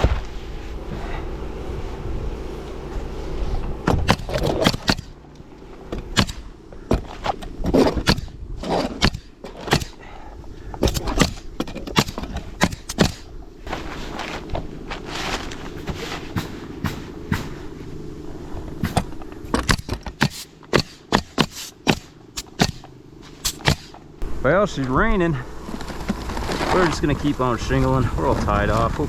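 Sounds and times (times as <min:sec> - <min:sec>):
low steady rumble: 0:00.0 - 0:29.0
sharp knocks and clicks: 0:03.9 - 0:05.1.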